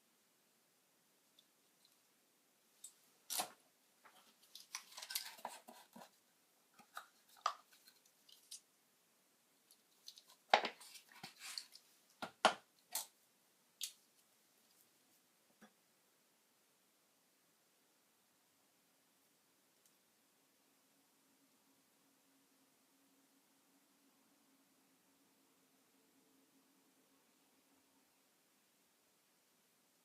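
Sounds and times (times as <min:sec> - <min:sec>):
rustling of handled objects: 0:02.7 - 0:08.8, 0:09.6 - 0:13.2
small objects clicking and tapping: 0:06.8 - 0:08.7, 0:09.7 - 0:13.2.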